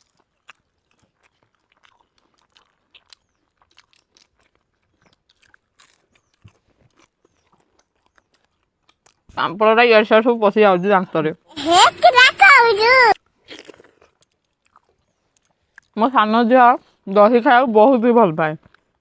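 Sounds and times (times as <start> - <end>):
crunching and chewing papad: 0.0 - 10.1, 13.1 - 16.2, 18.6 - 19.0.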